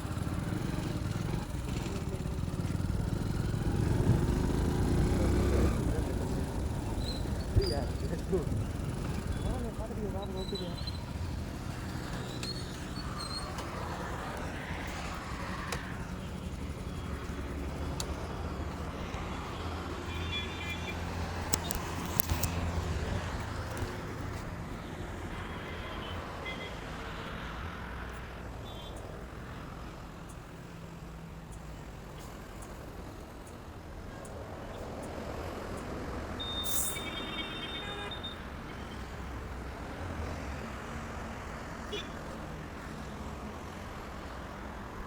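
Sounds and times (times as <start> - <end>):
motorcycle engine running: 0.0 - 24.4
traffic passing: 0.0 - 45.0
sharp clicks: 21.3 - 22.8.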